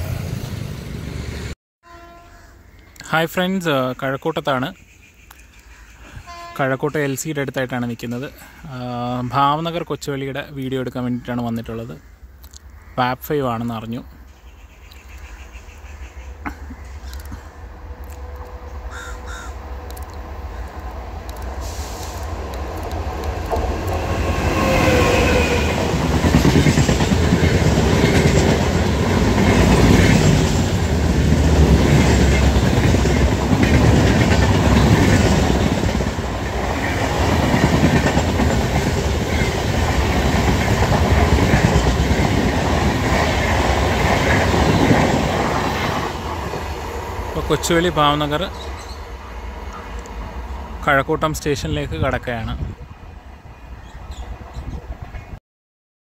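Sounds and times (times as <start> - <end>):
train wheels clattering over rails: 22.9 - 46.8.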